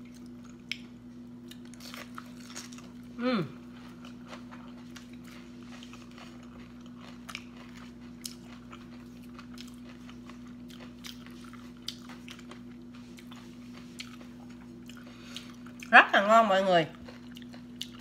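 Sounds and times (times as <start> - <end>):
person chewing crispy food: 0.0 - 16.0, 16.9 - 18.0
low steady hum: 0.0 - 18.0.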